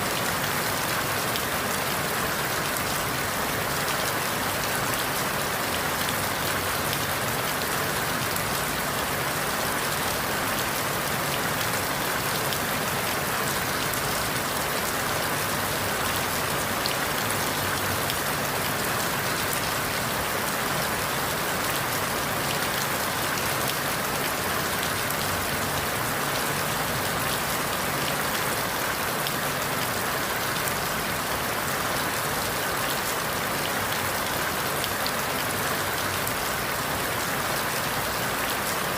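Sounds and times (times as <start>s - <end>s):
rain on leaves: 0.0s - 38.9s.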